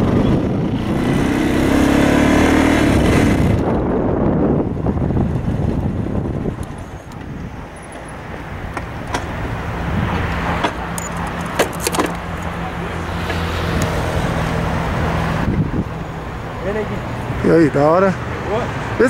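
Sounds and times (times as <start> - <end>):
car engine humming: 0.0 - 19.0
sharp clicks and knocks: 8.7 - 9.4, 10.1 - 12.6.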